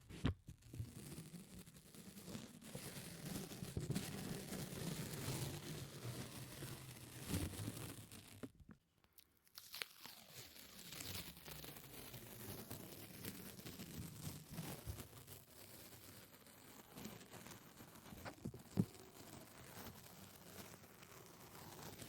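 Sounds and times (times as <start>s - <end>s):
sticky crackling and tearing: 9.4s - 15.3s.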